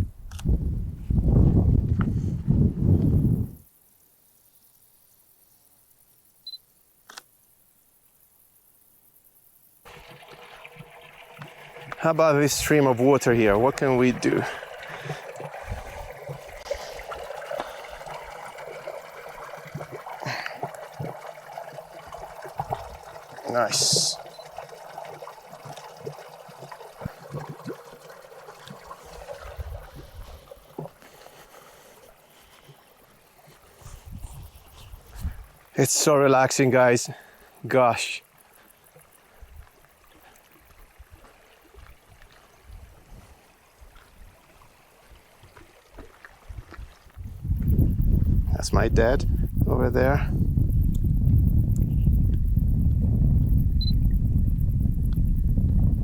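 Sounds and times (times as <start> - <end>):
camera autofocus beep: 6.4 - 7.3, 53.8 - 54.0
small water splashes: 9.8 - 34.0, 35.0 - 47.4
mountain stream rushing: 9.9 - 33.9.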